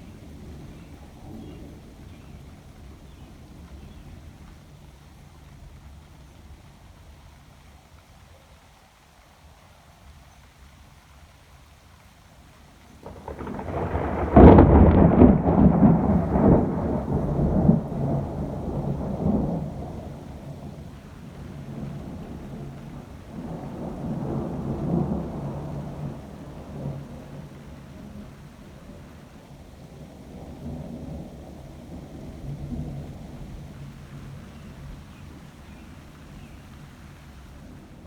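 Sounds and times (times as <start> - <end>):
thunder rumbling and cracking: 13.0 - 35.4.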